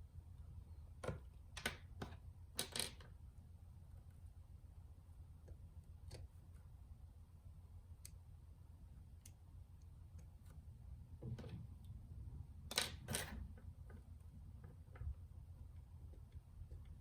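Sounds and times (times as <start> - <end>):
small clicks and taps: 12.7 - 17.0.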